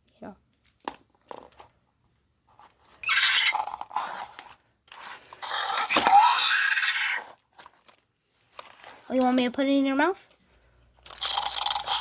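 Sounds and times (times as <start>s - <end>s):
toy dinosaur electronic screeches: 3.0s - 4.2s.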